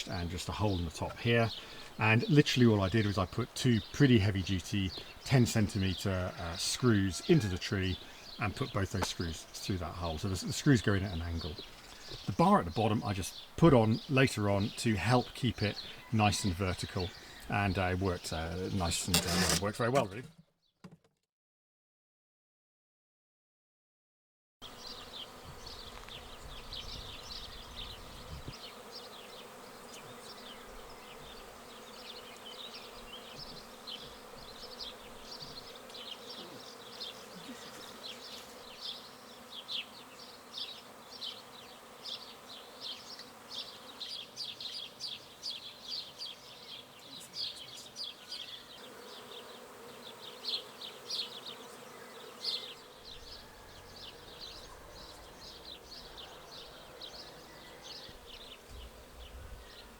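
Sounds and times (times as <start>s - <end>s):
swarm of bees buzzing: 0.1s - 19.6s, 24.6s - 59.9s.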